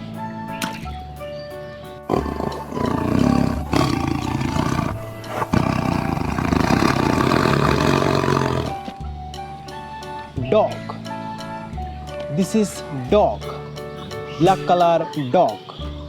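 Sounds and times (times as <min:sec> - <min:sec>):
tiger roaring and growling: 0:02.1 - 0:09.0.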